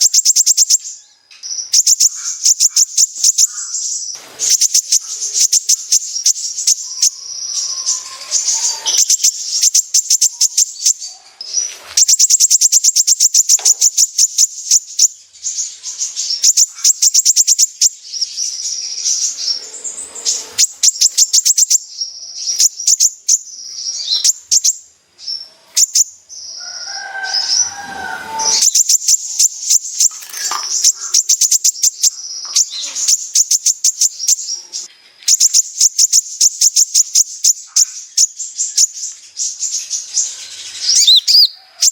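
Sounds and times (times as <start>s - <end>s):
bird singing rapid chattering song: 0.0s - 26.6s, 27.2s - 41.9s.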